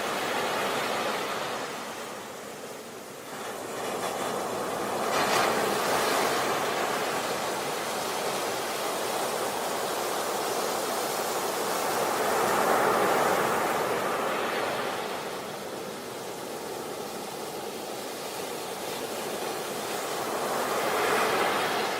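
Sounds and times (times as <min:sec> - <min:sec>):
sea waves breaking on beach: 0:00.0 - 0:21.9.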